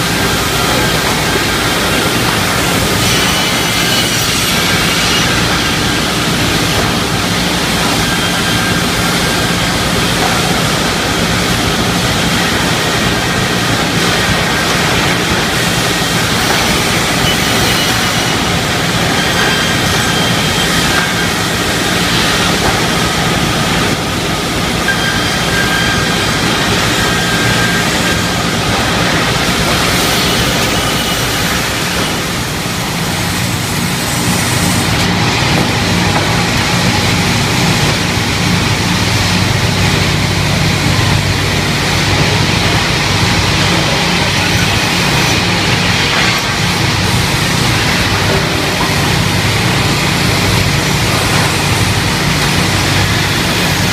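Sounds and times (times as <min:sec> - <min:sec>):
saw cutting wood: 0:00.0 - 0:09.6, 0:24.8 - 0:35.1.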